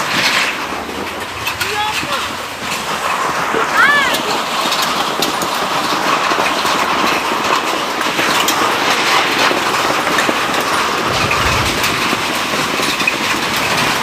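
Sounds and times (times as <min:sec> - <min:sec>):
short low rumble: 0:11.0 - 0:12.6
heavy rain hiss: 0:11.1 - 0:12.5
sharp drop hits: 0:11.1 - 0:12.5.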